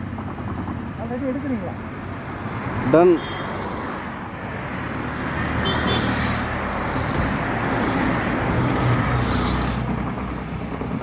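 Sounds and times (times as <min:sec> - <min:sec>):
short hissing rush: 0:03.2 - 0:10.0
vehicle engine running: 0:04.3 - 0:11.0.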